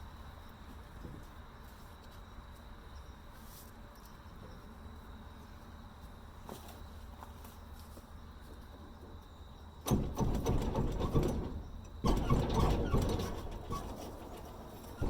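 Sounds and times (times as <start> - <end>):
engine cranking: 9.9 - 15.0.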